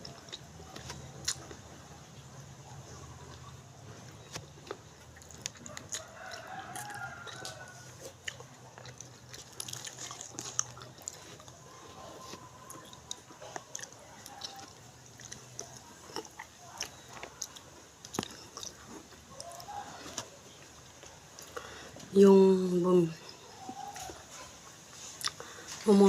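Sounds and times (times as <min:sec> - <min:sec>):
chewing and mouth smacks: 0:00.0 - 0:21.8, 0:23.3 - 0:25.8
rooster crowing: 0:05.7 - 0:08.1, 0:11.6 - 0:14.8, 0:19.3 - 0:20.5, 0:23.5 - 0:24.4.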